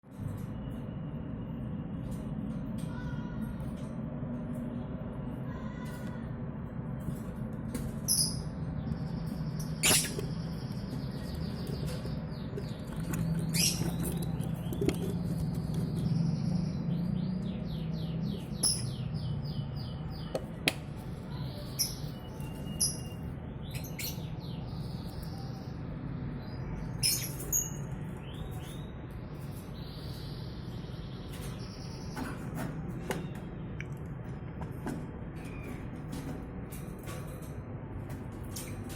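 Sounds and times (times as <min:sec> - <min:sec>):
lovebirds chirping: 0:08.0 - 0:20.4, 0:21.3 - 0:25.8
sharp clicks and scratches: 0:09.8 - 0:16.3.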